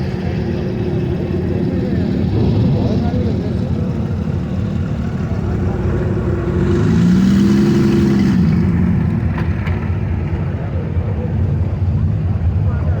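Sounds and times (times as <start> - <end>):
low rumble: 0.0 - 13.0
car engine passing by: 1.8 - 10.2.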